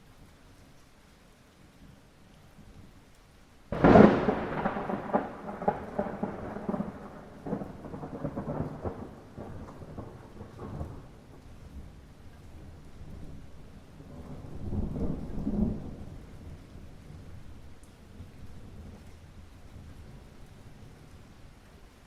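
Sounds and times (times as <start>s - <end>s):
light rain: 0.0s - 22.0s
thunderclap with rolling rumbles: 3.7s - 20.3s.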